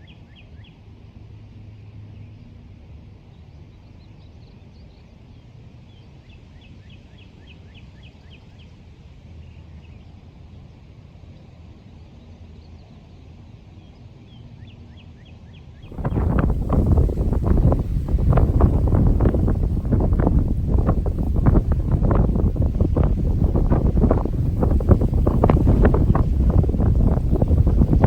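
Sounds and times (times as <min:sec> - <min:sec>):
low outdoor rumble: 0:15.9 - 0:28.0.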